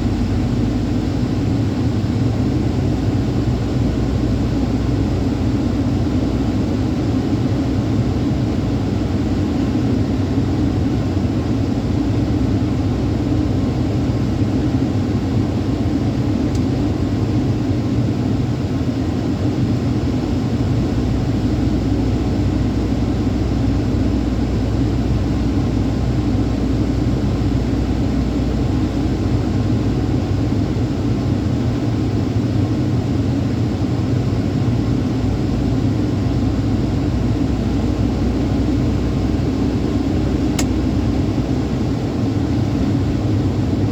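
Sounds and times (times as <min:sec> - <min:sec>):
truck engine and road noise: 0:00.0 - 0:43.9.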